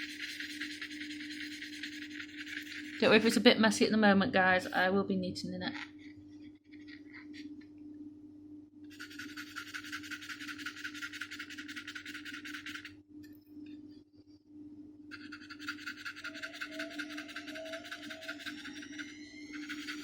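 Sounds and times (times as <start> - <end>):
paintbrush scratching on wood: 0.0 - 3.4, 8.9 - 12.9, 15.1 - 20.0
faint steady hum: 0.0 - 20.0.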